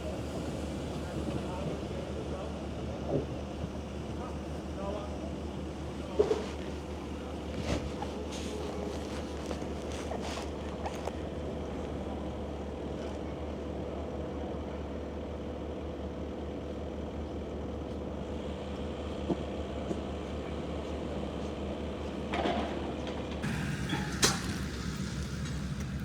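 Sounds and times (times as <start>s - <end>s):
loud rattle: 23.4s - 26.0s
steam train rumbling: 23.4s - 26.0s.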